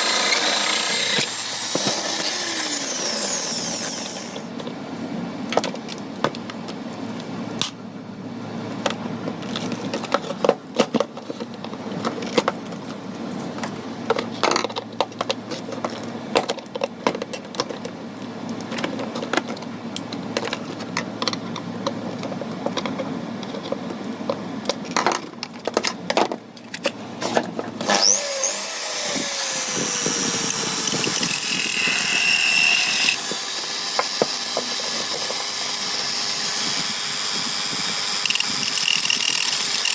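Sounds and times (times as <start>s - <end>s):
hand tools clicking and scraping: 0.0s - 4.5s, 20.4s - 39.9s
small power tool whining: 0.0s - 4.5s, 27.8s - 39.9s.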